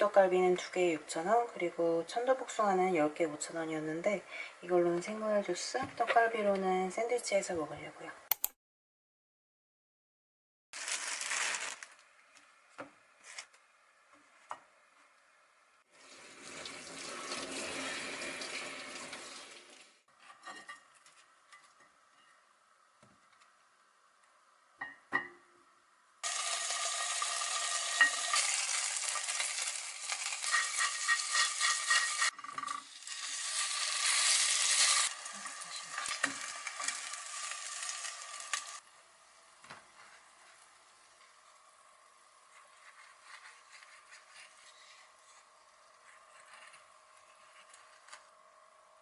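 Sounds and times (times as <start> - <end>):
food sizzling in a frying pan: 10.8 - 11.8, 16.0 - 20.0, 26.2 - 38.9.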